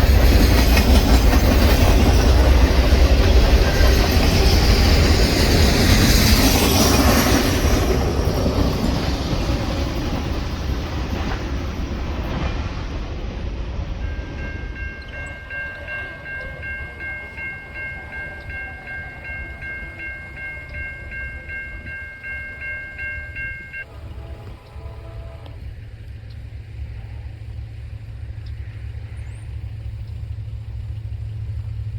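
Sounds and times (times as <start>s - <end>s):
crossing bell ringing: 0.0s - 11.4s, 13.4s - 25.5s
train wheels clattering: 0.0s - 25.8s.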